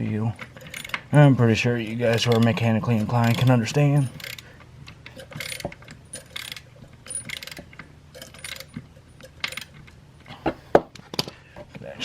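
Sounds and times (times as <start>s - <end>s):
ratchet clicking: 0.6s - 1.0s, 3.1s - 4.4s, 5.1s - 9.8s.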